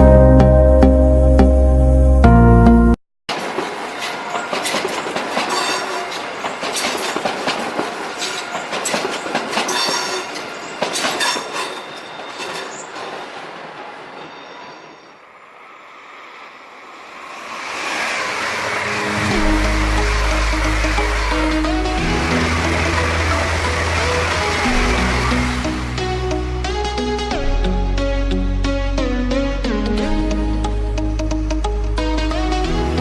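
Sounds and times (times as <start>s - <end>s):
train wheels clicking over rail joints: 3.3s - 14.4s
high squeal from train wheels: 3.6s - 21.4s
rush of noise: 15.3s - 26.2s.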